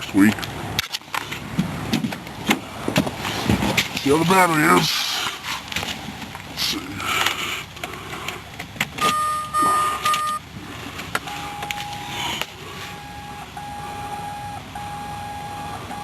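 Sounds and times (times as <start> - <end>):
lower warning chime: 9.0 - 10.4, 11.2 - 16.0
short high beeps: 9.0 - 10.4, 12.9 - 16.0
clicks: 11.1 - 12.6.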